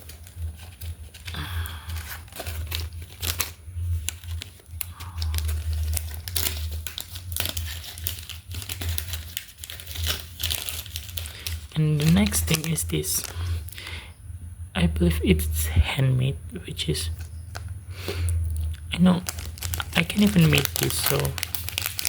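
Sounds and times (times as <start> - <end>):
packaging crinkling: 0.0 - 14.0, 18.4 - 22.0.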